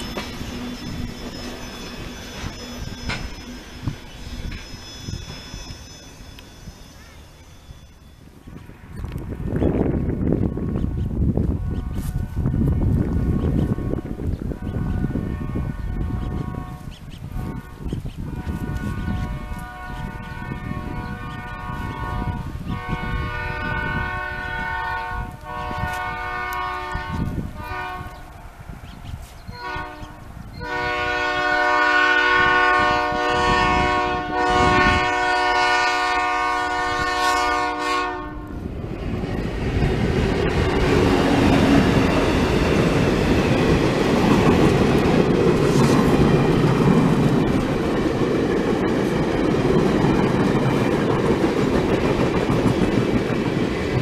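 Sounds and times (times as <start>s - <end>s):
wheels clacking over rail joints: 0.0s - 9.2s, 38.9s - 54.0s
train rumbling past: 0.0s - 54.0s
locomotive horn blasts: 11.5s - 28.3s, 29.5s - 38.6s.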